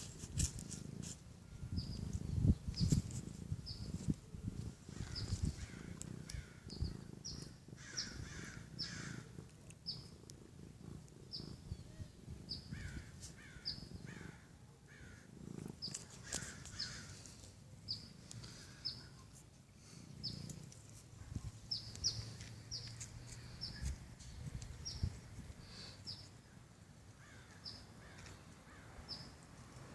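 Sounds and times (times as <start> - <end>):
bird chirping: 1.6 - 3.0, 3.6 - 4.0, 5.0 - 9.2, 9.8 - 10.2, 11.2 - 14.3, 15.0 - 17.2, 17.8 - 19.3, 20.2 - 20.6, 21.5 - 26.5, 27.2 - 29.4.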